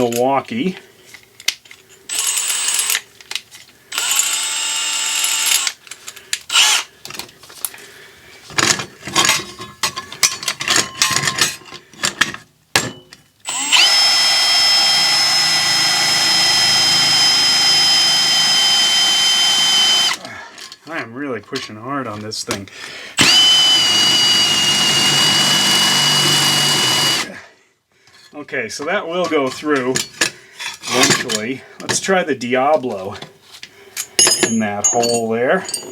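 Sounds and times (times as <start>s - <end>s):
power drill boring into metal: 2.1s - 3.0s, 3.9s - 5.8s, 6.5s - 6.9s, 13.5s - 20.2s, 23.2s - 27.3s.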